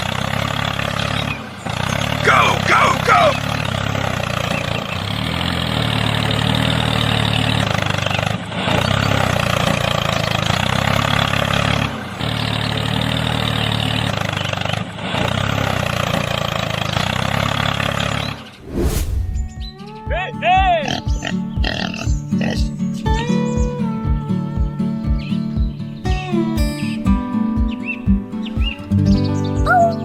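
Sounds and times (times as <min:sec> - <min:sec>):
mini tractor motor running: 0:00.0 - 0:18.5.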